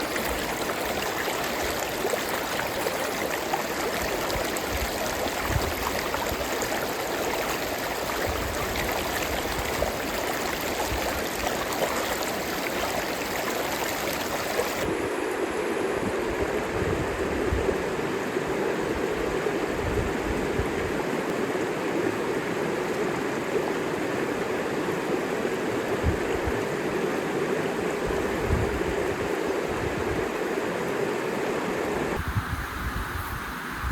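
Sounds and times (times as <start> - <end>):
river water rushing: 0.0 - 14.9.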